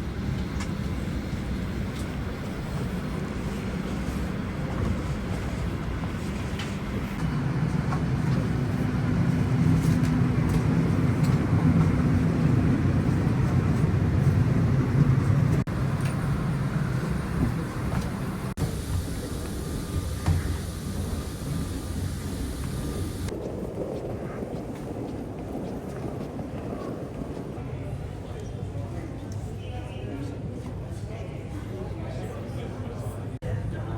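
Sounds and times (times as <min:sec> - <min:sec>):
low cabin hum: 0:00.0 - 0:23.3.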